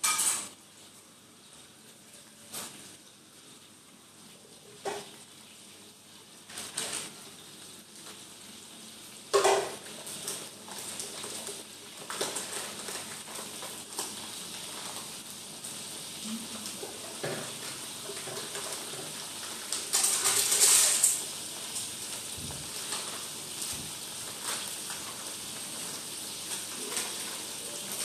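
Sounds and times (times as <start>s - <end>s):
pots and dishes clanking: 0.0s - 0.6s, 4.8s - 5.2s, 9.3s - 15.0s, 16.7s - 21.3s.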